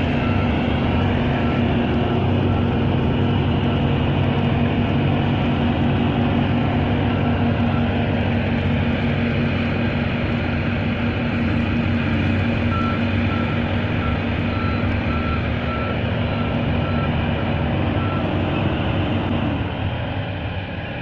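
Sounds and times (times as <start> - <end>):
reversing alarm beeping: 0.0 - 5.0, 11.4 - 19.4
heavy truck engine running: 0.0 - 21.0.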